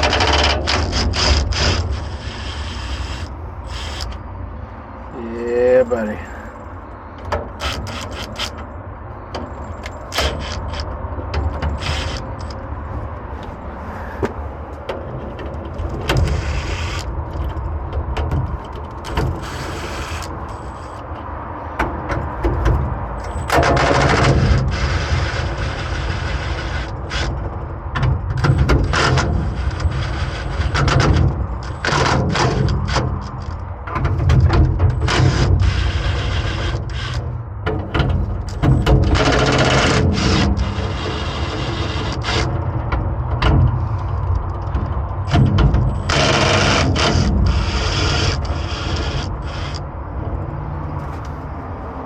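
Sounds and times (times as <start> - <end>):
ratchet and socket clicking: 0.0 - 4.2, 7.2 - 8.7, 9.3 - 12.6, 16.0 - 21.2
low engine rumble: 0.0 - 52.0.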